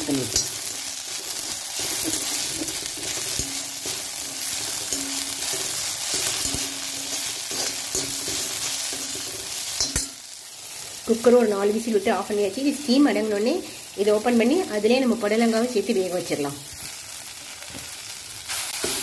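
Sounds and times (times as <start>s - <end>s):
vegetables sizzling in a pan: 0.0s - 19.0s
metal spatula scraping pan: 0.2s - 10.3s.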